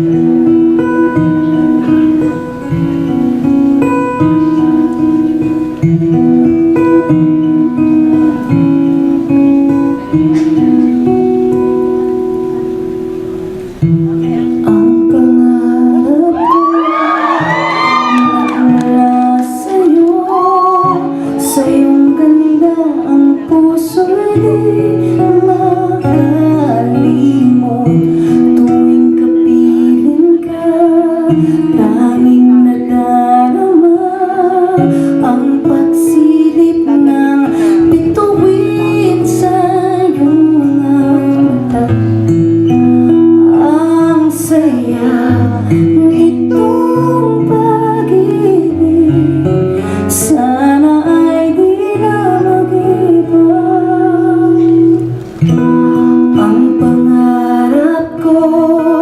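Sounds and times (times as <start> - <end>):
acoustic guitar accompaniment: 0.0 - 59.0
woman singing: 13.8 - 59.0.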